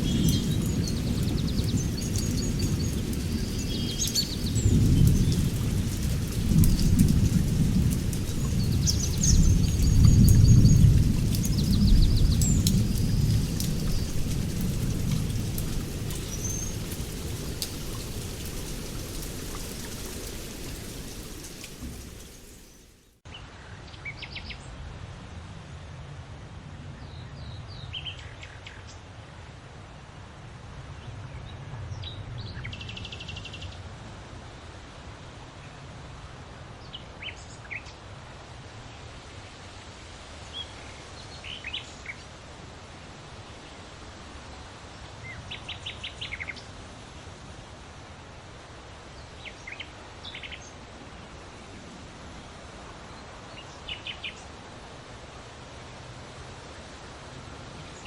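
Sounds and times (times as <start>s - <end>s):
birds chirping: 0.0s - 7.3s, 8.1s - 23.1s
background hiss: 0.0s - 31.1s, 32.0s - 58.0s.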